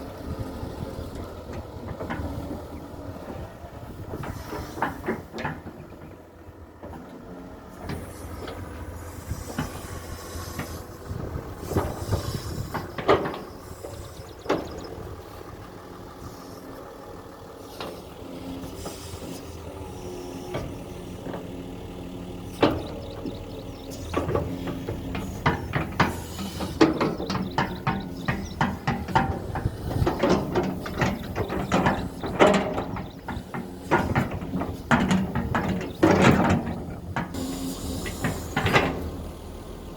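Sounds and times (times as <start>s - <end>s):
excavator diesel engine running: 0.0s - 39.9s
metallic knocks and clanks: 4.1s - 7.1s, 11.6s - 15.4s, 20.5s - 39.2s.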